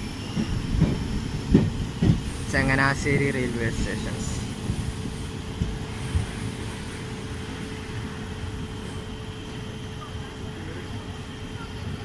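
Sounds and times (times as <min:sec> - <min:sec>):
train rumble from on board: 0:00.0 - 0:12.0.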